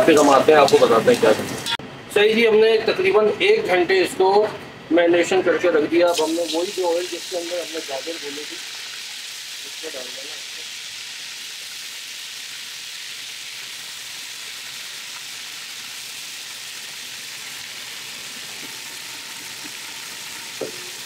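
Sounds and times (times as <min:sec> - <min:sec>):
chicken sizzling in hot oil: 0:06.1 - 0:21.0.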